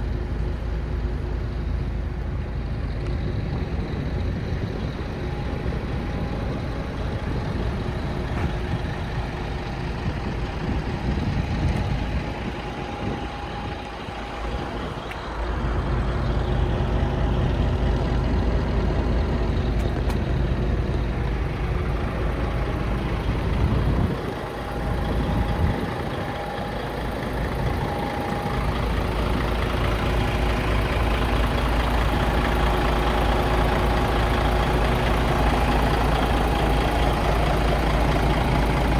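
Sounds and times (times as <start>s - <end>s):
diesel truck engine running: 0.0s - 38.9s
steady whine: 0.0s - 38.9s.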